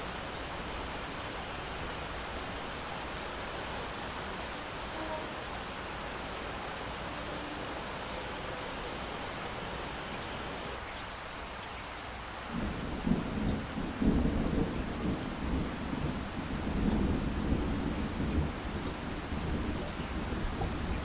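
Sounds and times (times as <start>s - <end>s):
steady rain: 0.0s - 21.0s
rolling thunder: 12.5s - 21.0s.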